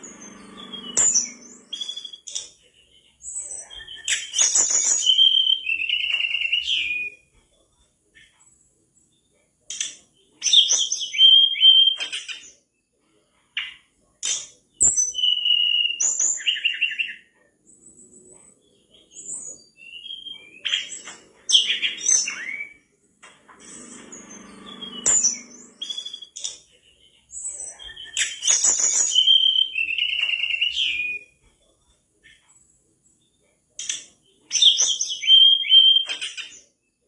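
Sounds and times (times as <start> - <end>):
bird singing whistled phrases: 0.0 - 2.5, 3.4 - 7.2, 10.5 - 12.4, 14.8 - 17.3, 19.1 - 22.9, 24.2 - 26.6, 27.5 - 31.4, 34.5 - 36.6.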